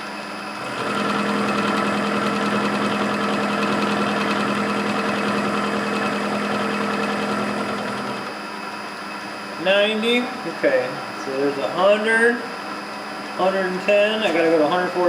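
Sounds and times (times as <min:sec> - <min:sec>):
milling cutter chattering through metal: 0:00.6 - 0:08.3
spindle humming: 0:00.6 - 0:08.3.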